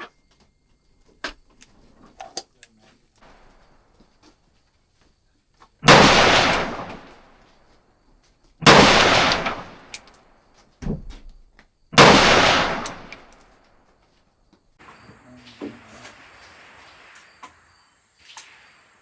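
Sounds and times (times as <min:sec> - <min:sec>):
rifle shots echoing: 0:05.8 - 0:07.4, 0:08.6 - 0:10.2, 0:12.0 - 0:13.6.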